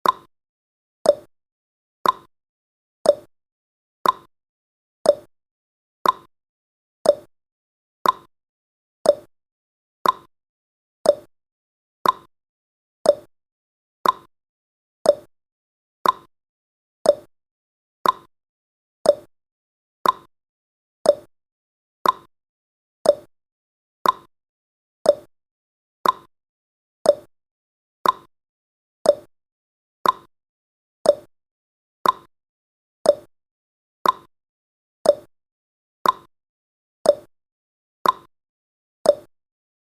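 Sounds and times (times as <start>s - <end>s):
timer ticking clicks: 0.0s - 0.3s, 1.0s - 1.3s, 2.0s - 2.3s, 3.0s - 3.3s, 4.0s - 4.3s, 5.0s - 5.3s, 6.0s - 6.3s, 7.0s - 7.3s, 8.0s - 8.3s, 9.0s - 9.3s, 10.0s - 10.3s, 11.0s - 11.3s, 12.0s - 12.3s, 13.0s - 13.3s, 14.0s - 14.3s, 15.0s - 15.3s, 16.0s - 16.3s, 17.0s - 17.3s, 18.0s - 18.3s, 19.0s - 19.3s, 20.0s - 20.3s, 21.0s - 21.3s, 22.0s - 22.3s, 23.0s - 23.3s, 24.0s - 24.3s, 25.0s - 25.3s, 26.0s - 26.3s, 27.0s - 27.3s, 28.0s - 28.3s, 29.0s - 29.3s, 30.0s - 30.3s, 31.0s - 31.3s, 32.0s - 32.3s, 33.0s - 33.3s, 34.0s - 34.3s, 35.0s - 35.3s, 36.0s - 36.3s, 37.0s - 37.3s, 38.0s - 38.3s, 39.0s - 39.3s.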